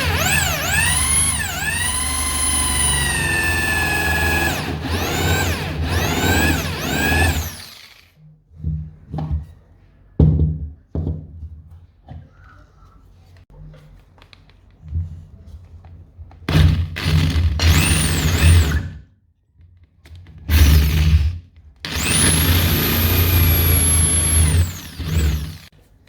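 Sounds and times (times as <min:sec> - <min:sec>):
electric power tool motor revving: 0:00.0 - 0:08.1, 0:17.0 - 0:18.8, 0:21.9 - 0:25.7.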